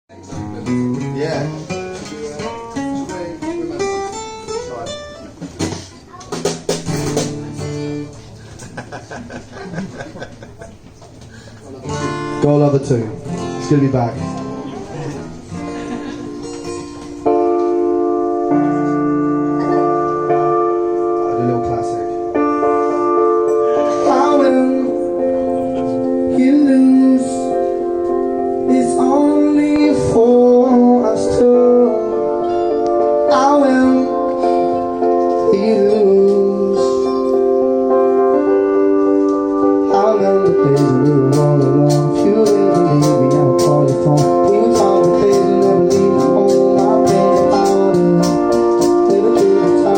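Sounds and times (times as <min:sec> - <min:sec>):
piano chords: 0:00.1 - 0:05.4, 0:11.7 - 0:49.9
acoustic guitar playing: 0:00.1 - 0:49.9
person singing: 0:23.5 - 0:37.9, 0:39.7 - 0:49.9.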